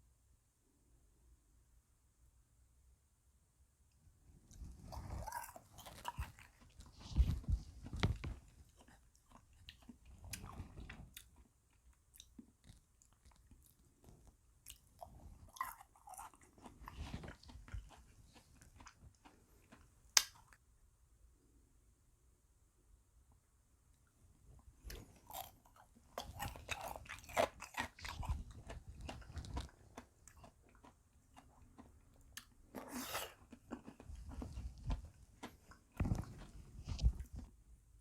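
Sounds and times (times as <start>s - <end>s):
chewing and crunching ice cream: 4.5s - 20.6s, 24.8s - 37.5s.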